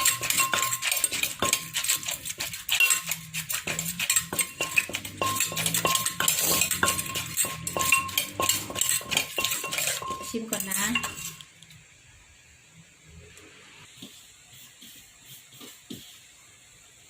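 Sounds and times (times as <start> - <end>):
pestle pounding in a mortar: 0.0 - 11.4.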